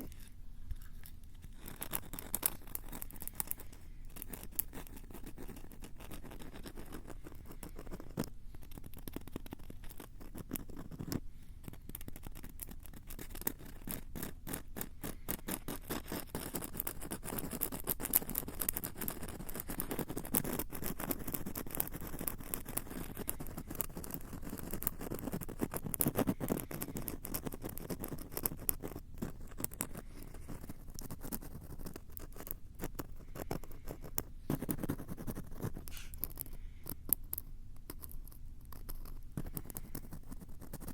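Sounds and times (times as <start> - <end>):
scratching on microphone: 0.0 - 11.8.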